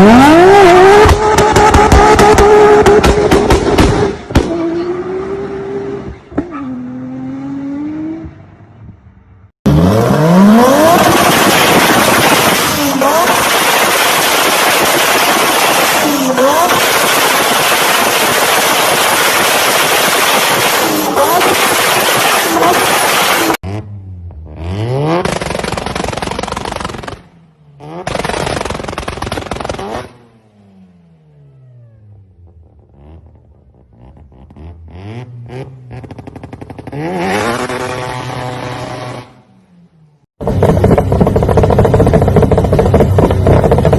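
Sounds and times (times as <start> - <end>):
exhaust pops and crackles: 0.9 - 4.5, 10.9 - 23.6, 25.2 - 27.3, 28.0 - 30.1, 40.4 - 43.9
car engine revving hard: 9.7 - 23.8, 34.5 - 39.3.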